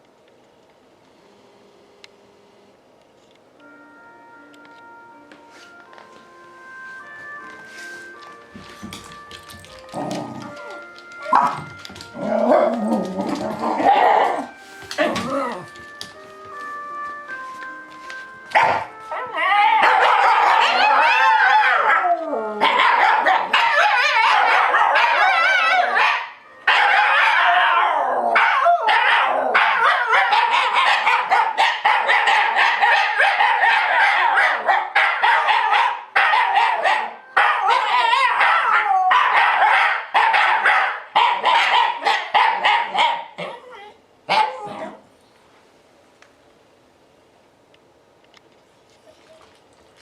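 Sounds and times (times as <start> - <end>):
dogs howling: 9.9 - 15.8, 18.8 - 40.7
dogs yipping and barking: 10.0 - 15.7, 18.5 - 45.0.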